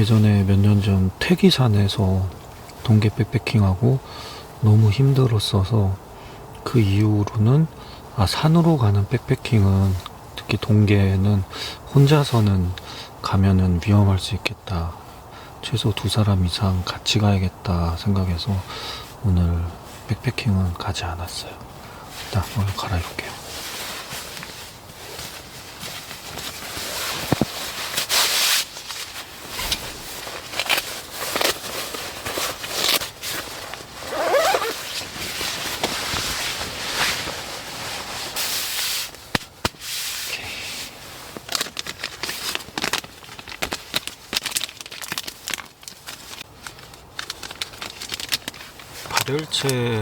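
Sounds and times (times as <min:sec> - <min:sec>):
nylon clothing rustling: 0:22.1 - 0:50.0.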